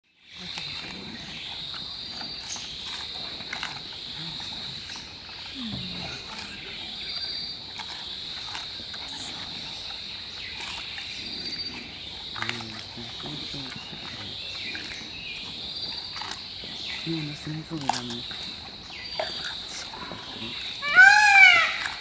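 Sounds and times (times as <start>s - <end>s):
pandas crunching bamboo: 1.8s - 4.4s, 10.4s - 11.1s, 12.2s - 18.6s.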